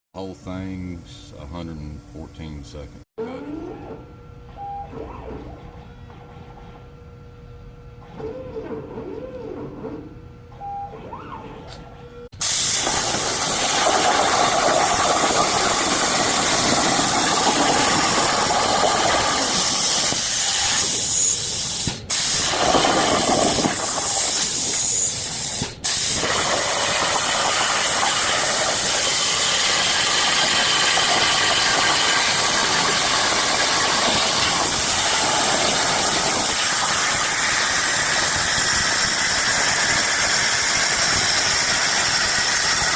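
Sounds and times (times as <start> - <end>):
quieter machine sounds: 0.2 - 42.9
plasma cutter torch hissing: 12.4 - 42.9.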